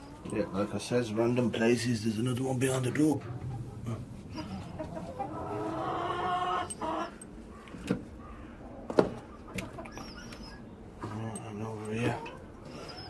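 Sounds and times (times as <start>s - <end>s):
hen calling: 3.1s - 13.0s.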